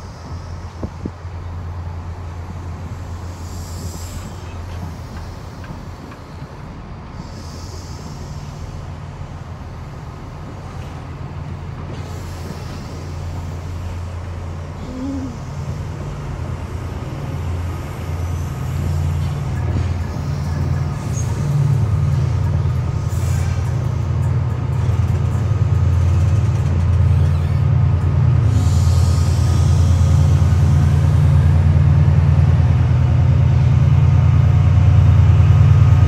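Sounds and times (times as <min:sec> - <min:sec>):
train low drone: 0:00.0 - 0:36.0.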